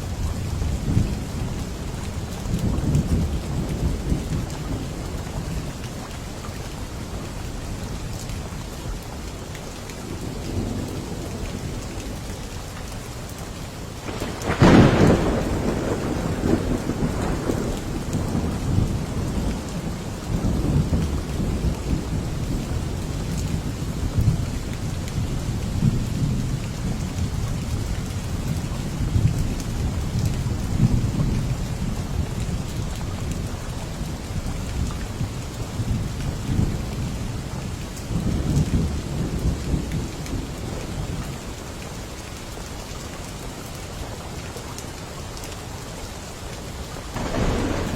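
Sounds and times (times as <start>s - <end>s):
heavy rain: 0.0s - 47.9s
thunder crack and rumbling: 14.0s - 41.4s, 47.1s - 47.9s.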